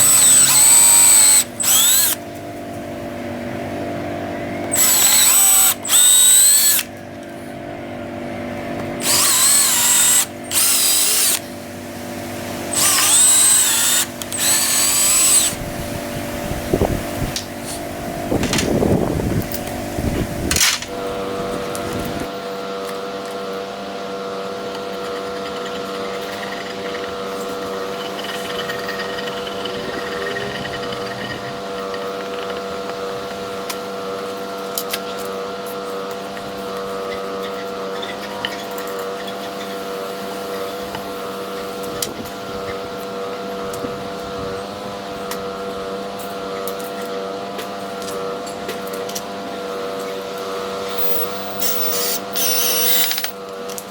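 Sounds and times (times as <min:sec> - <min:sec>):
steady machine hum: 0:00.0 - 0:22.3, 0:50.5 - 0:53.1.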